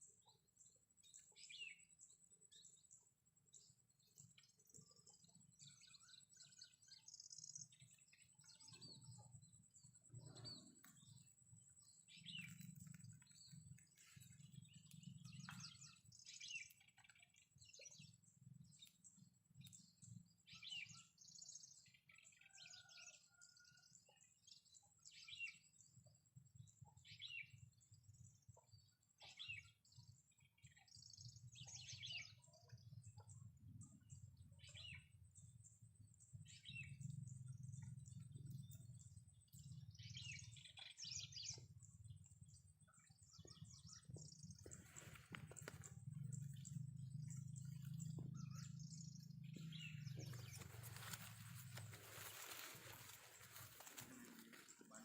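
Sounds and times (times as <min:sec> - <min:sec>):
wild birds chirping: 0:00.0 - 0:55.0
low rumble: 0:43.8 - 0:53.4.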